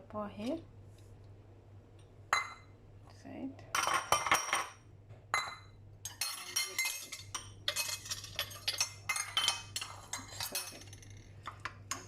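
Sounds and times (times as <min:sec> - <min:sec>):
spoon clinking against bowl: 0:05.4 - 0:12.0.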